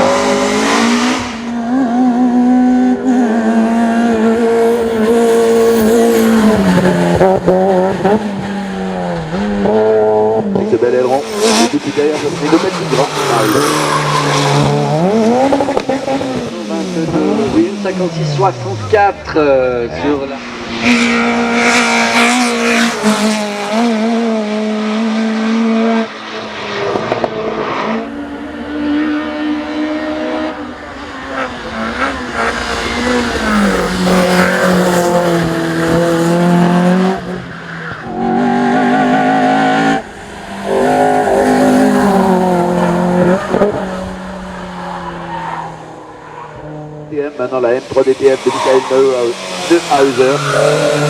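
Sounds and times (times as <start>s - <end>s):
race car engine at high revs: 0.0s - 51.0s.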